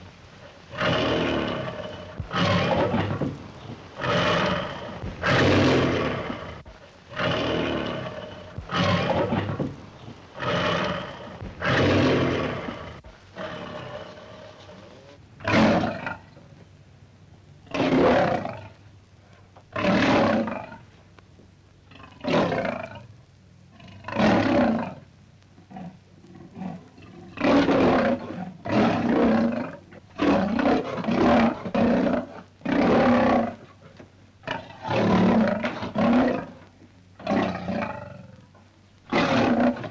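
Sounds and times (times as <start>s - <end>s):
lion roaring: 0.0s - 16.3s, 17.6s - 18.8s, 25.7s - 38.5s, 39.1s - 39.9s.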